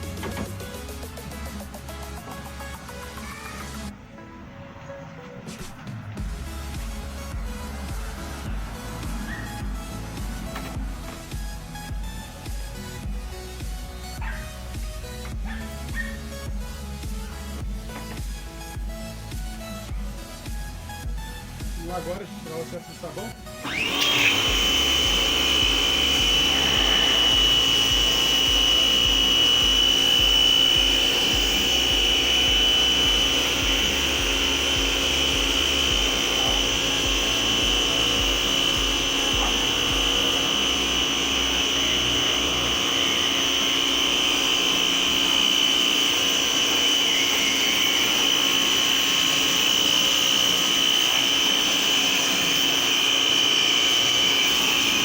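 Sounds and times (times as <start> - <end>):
pressure washer whine: 0.0 - 55.0
water jet hissing: 23.6 - 55.0.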